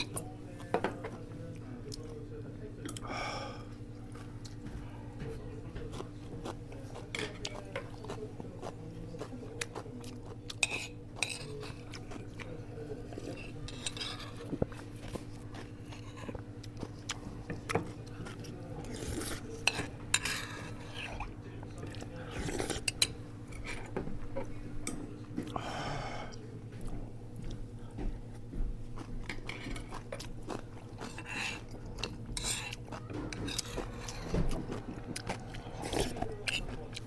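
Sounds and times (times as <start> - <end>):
steady low hum: 0.0 - 37.0
utensils clinking against bowls: 10.5 - 12.4, 13.1 - 14.5, 18.3 - 21.2, 31.0 - 37.0.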